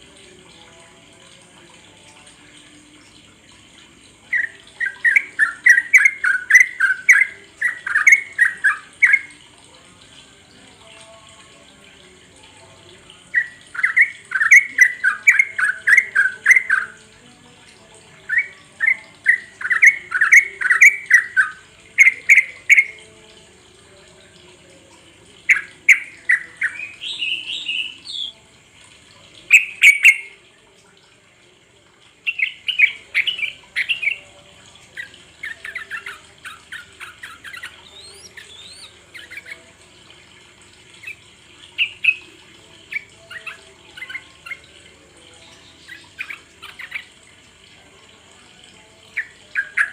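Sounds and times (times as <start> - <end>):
bird singing chattering notes: 29.5 - 30.4, 35.0 - 39.6.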